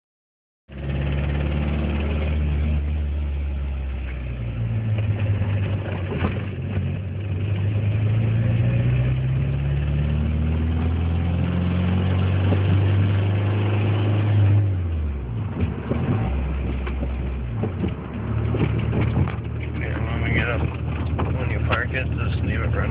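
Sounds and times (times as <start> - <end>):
car engine running: 0.7 - 22.9.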